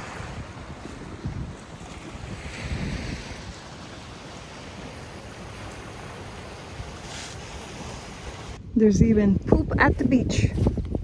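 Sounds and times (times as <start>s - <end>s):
ocean surf washing onto beach: 0.0s - 8.6s
wind buffeting the microphone: 0.0s - 11.0s.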